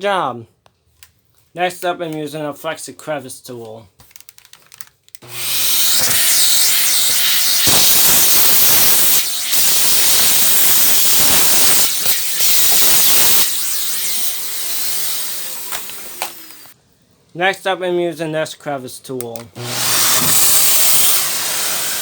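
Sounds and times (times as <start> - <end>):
vacuum motor winding down: 5.2 - 16.7, 19.6 - 22.0
vacuum cleaner suction rush: 5.2 - 16.8, 19.6 - 22.0.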